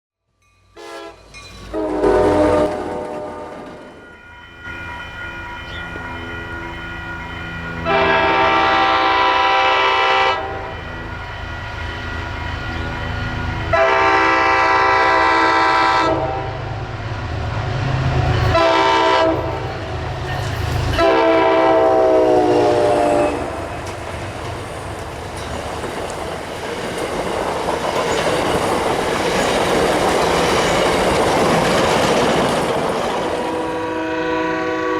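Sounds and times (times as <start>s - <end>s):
train coaches clattering: 0.6s - 34.9s
train horn: 0.7s - 4.0s, 7.8s - 16.8s, 18.2s - 20.0s, 20.9s - 23.9s, 33.4s - 34.9s.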